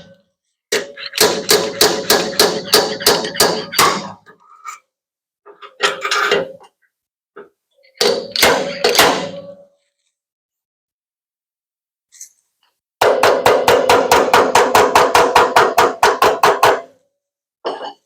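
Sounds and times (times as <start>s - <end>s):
hammer tapping sheet metal: 0.8s - 4.2s, 8.0s - 9.7s, 13.0s - 16.9s.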